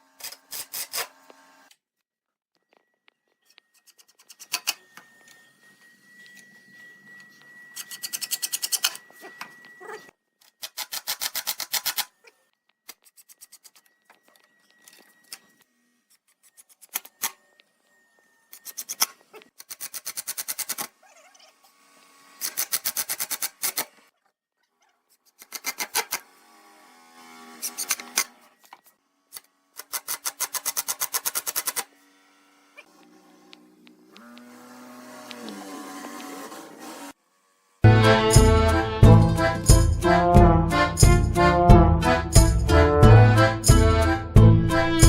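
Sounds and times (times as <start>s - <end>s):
hand tool scraping wood: 0.1s - 1.2s, 3.5s - 4.9s, 7.8s - 9.6s, 12.9s - 13.9s, 25.1s - 26.3s, 27.4s - 31.9s, 34.2s - 37.2s.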